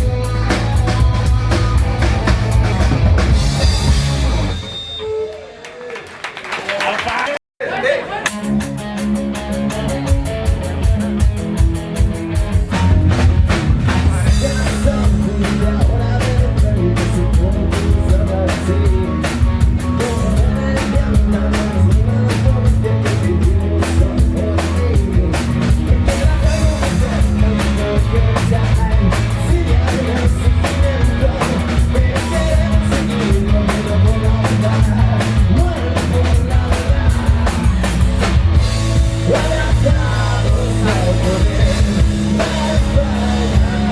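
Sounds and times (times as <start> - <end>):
live hard rock band: 0.0 - 5.1, 8.3 - 43.9
drum kit beating: 0.0 - 5.2, 8.3 - 43.9
person singing: 12.5 - 43.9.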